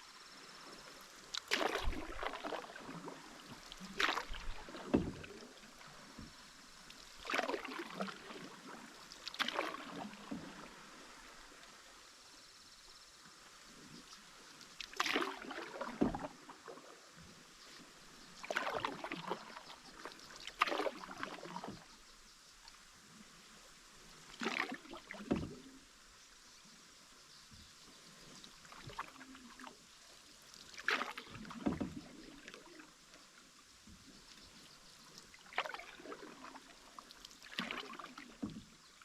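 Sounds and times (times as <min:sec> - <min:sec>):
water splashing against canoe hull: 0:00.7 - 0:11.6, 0:14.8 - 0:22.7, 0:24.2 - 0:26.0, 0:27.4 - 0:39.0.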